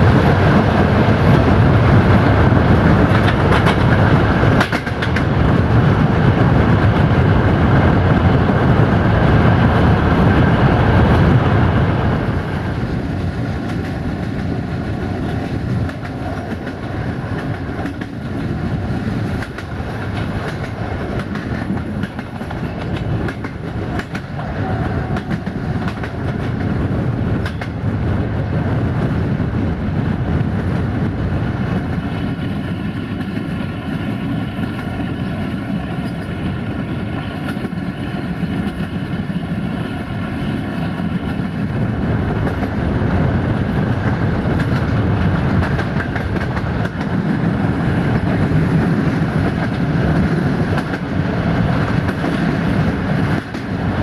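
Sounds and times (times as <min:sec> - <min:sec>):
train wheels rumbling on rails: 0:00.0 - 0:54.0
wheels clicking over rail joints: 0:02.9 - 0:05.4, 0:13.2 - 0:27.9, 0:43.8 - 0:53.9.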